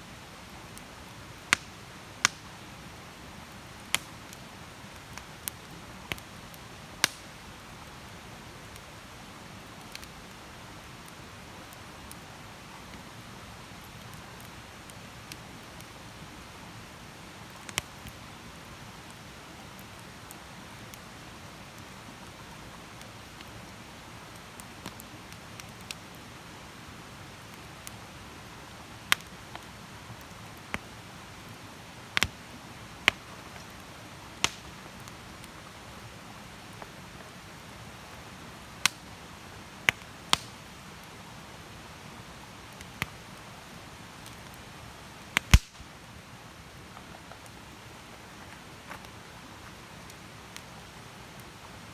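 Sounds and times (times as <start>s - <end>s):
campfire hissing: 0.0s - 51.9s
campfire crackling pops: 0.5s - 7.8s, 8.5s - 13.1s, 13.7s - 16.6s, 17.2s - 18.4s, 24.2s - 41.2s, 42.4s - 46.0s.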